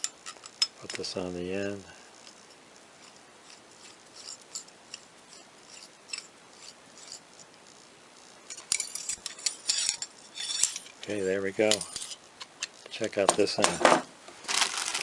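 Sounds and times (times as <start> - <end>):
metal clicks and clinks: 0.0 - 1.0, 8.5 - 13.0
metal parts ticking and scraping: 0.0 - 1.2, 2.1 - 7.9, 8.5 - 13.8.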